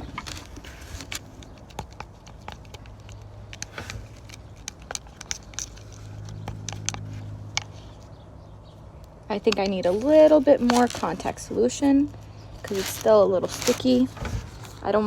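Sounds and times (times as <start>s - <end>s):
low engine hum: 0.0s - 15.0s
stick tapping plastic container: 1.4s - 7.9s.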